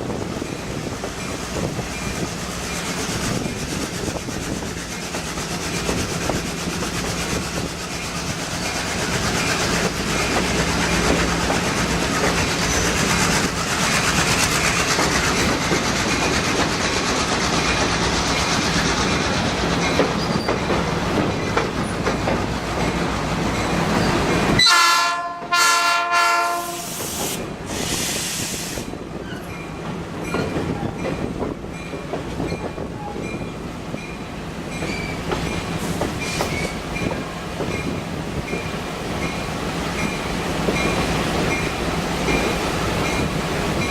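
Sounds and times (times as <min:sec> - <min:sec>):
train rumbling on rails: 0:00.0 - 0:43.9
train horn: 0:24.6 - 0:27.1.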